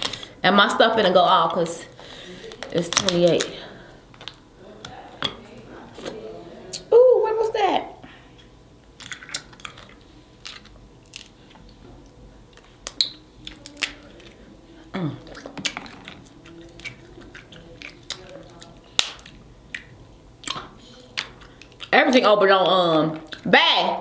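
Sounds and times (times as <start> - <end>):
crab shells cracking: 2.4 - 5.0, 8.9 - 11.6, 12.6 - 14.4, 15.2 - 21.9
chewing: 8.4 - 11.8, 12.5 - 22.0, 23.1 - 23.5.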